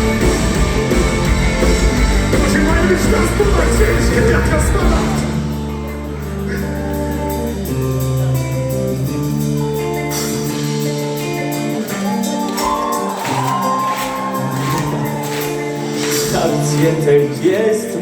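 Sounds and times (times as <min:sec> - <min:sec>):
guitar chords: 0:00.0 - 0:18.0.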